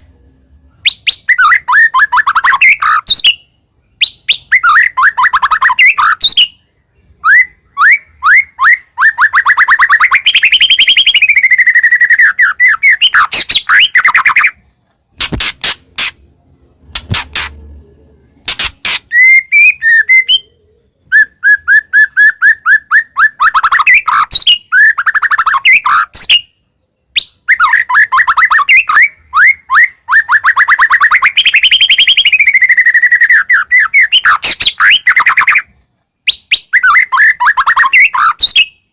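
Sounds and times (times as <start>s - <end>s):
songbird trilling: 0.0s - 14.6s, 15.2s - 35.7s
sharp clicks: 14.6s - 16.2s, 16.9s - 17.7s, 18.4s - 19.2s.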